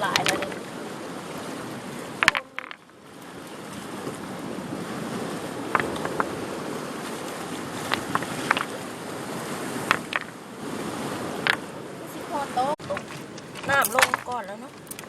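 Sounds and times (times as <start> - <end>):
shellfish pried off rocks: 0.0 - 4.6, 5.6 - 6.4, 7.4 - 8.9, 9.8 - 10.4, 11.4 - 11.7, 12.8 - 15.0
sea surf: 0.0 - 15.0.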